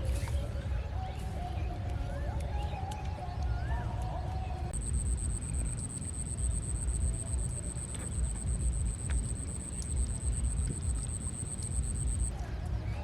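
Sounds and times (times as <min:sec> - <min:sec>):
wind rumble on microphone: 0:00.0 - 0:13.0
high-pitched whine: 0:04.8 - 0:12.3.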